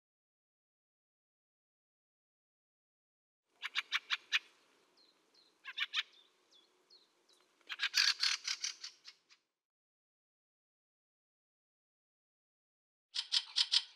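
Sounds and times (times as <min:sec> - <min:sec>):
bird chattering chack calls: 0:03.6 - 0:04.5, 0:05.6 - 0:06.2, 0:07.7 - 0:09.3, 0:13.2 - 0:13.9.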